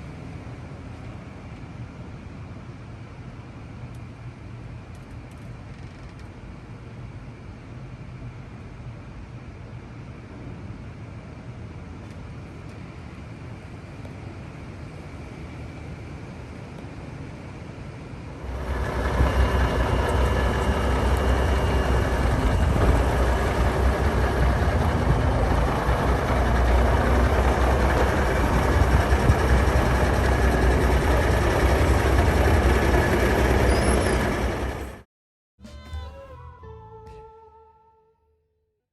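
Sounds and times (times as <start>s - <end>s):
diesel truck engine rumbling: 18.4s - 35.1s.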